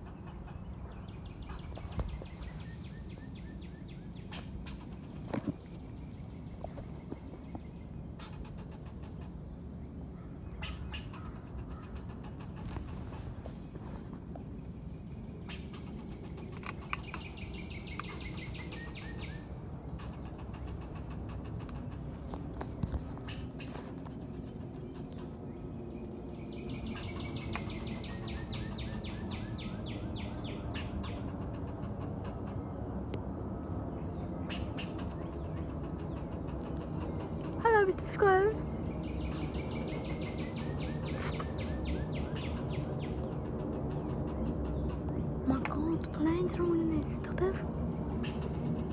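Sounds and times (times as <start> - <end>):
low background rumble: 0.0 - 48.9
squirrel clicking chatter: 8.2 - 9.3, 10.6 - 12.9, 15.5 - 19.2, 20.0 - 25.5, 34.5 - 38.1, 39.2 - 47.6, 48.2 - 48.9.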